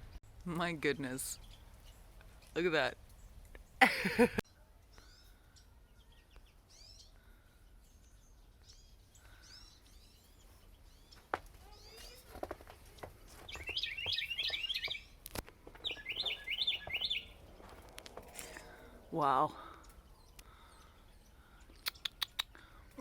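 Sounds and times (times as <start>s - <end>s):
small birds chirping: 0.0s - 23.0s
sharp clicks: 21.8s - 22.6s.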